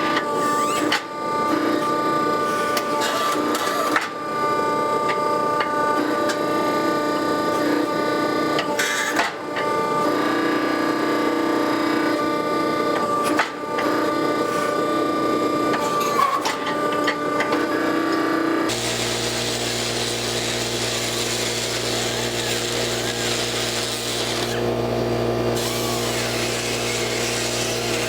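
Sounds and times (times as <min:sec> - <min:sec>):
machine humming and hissing: 0:16.7 - 0:28.0
power tool pulsing drone: 0:18.7 - 0:28.0.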